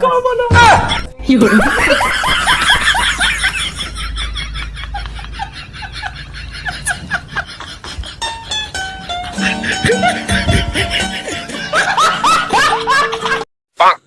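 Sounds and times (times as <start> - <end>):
person laughing: 0.9 - 13.4
music with held notes: 7.8 - 13.4.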